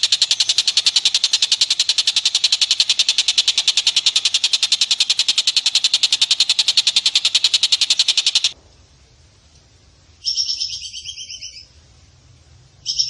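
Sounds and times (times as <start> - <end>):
rapid chattering animal call: 0.0 - 8.6.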